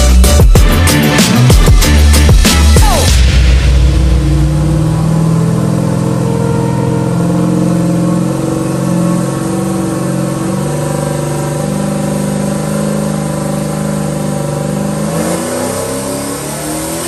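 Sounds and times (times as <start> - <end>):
music: 0.0 - 12.8
car engine running at low speed: 0.0 - 17.0.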